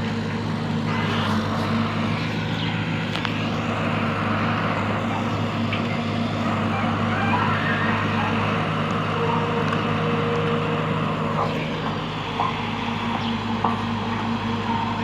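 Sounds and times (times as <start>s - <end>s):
excavator diesel engine droning: 0.0s - 15.0s.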